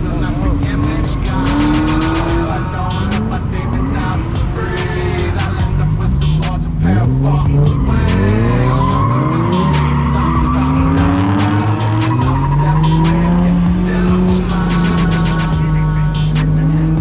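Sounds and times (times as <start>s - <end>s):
tyres squealing: 0.0s - 15.6s
car engine revving hard: 0.0s - 17.0s.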